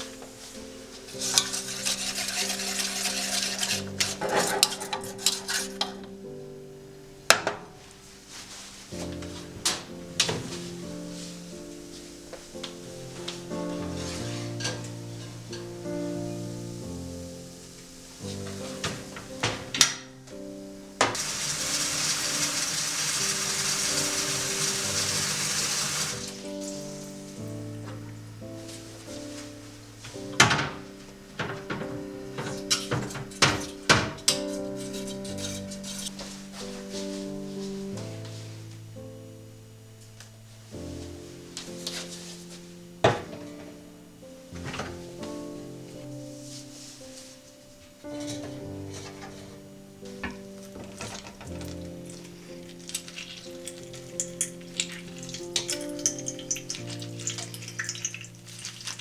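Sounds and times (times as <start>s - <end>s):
utensil scraping in a pot: 0.0s - 6.0s, 10.7s - 19.5s, 21.1s - 28.1s, 32.2s - 37.8s, 48.0s - 59.0s
soft background music: 0.0s - 59.0s
water running from a tap: 1.2s - 4.2s, 21.1s - 27.4s, 50.8s - 59.0s.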